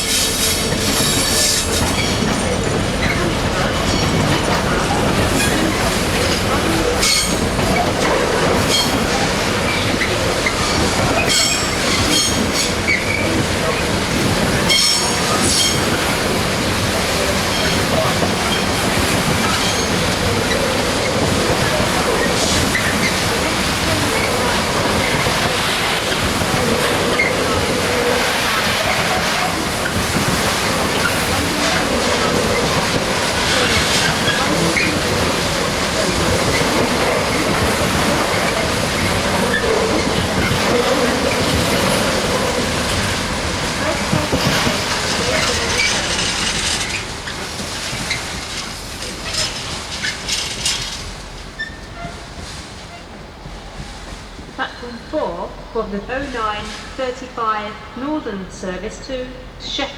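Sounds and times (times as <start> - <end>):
train rolling rumble: 0.0 - 59.9
high wheel squeals: 51.6 - 52.3.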